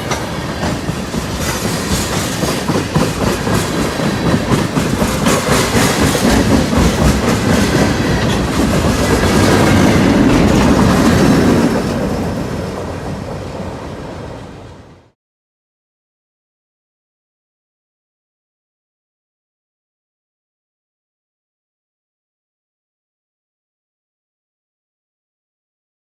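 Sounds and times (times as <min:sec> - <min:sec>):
freight train wheels clacking on rails: 0:00.0 - 0:14.9.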